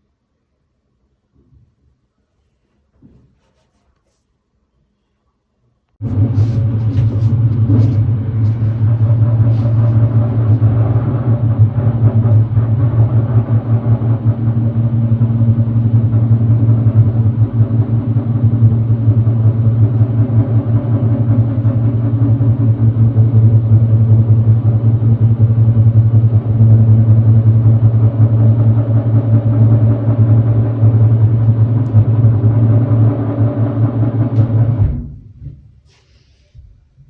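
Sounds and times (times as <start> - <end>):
construction machinery rumbling: 6.0 - 35.2.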